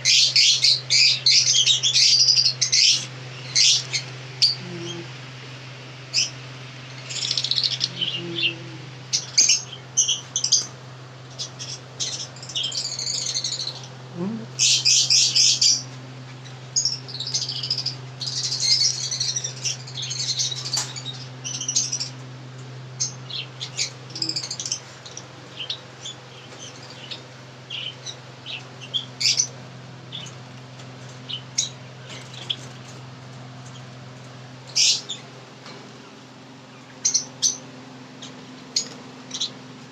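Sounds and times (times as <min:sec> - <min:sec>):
pet birds chirping: 0:00.0 - 0:39.9
steady low hum: 0:00.0 - 0:39.9.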